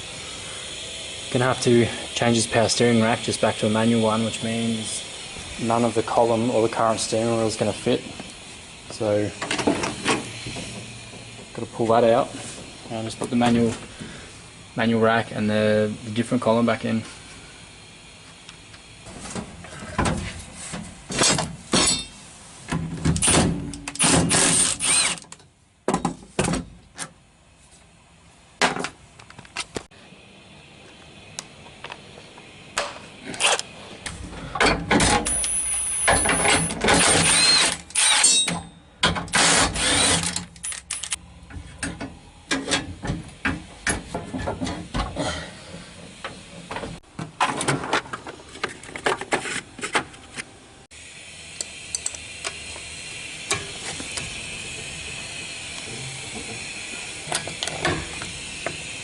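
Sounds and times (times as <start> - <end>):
power drill whirring in bursts: 24.0 - 25.2, 35.3 - 38.4, 39.3 - 41.0.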